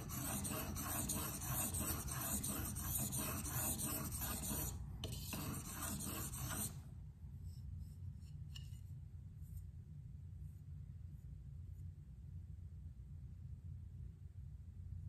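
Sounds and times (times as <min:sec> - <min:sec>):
knife scraping on whetstone: 0:00.0 - 0:06.8.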